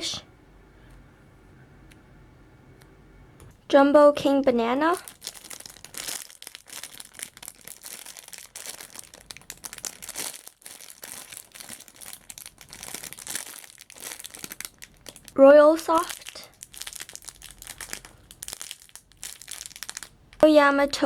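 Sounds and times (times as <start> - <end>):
plastic packaging crinkling: 4.6 - 20.5.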